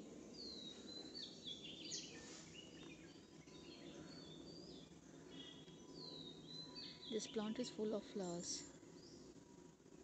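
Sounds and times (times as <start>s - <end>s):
small birds chirping: 0.0s - 9.7s
low background rumble: 2.8s - 10.0s.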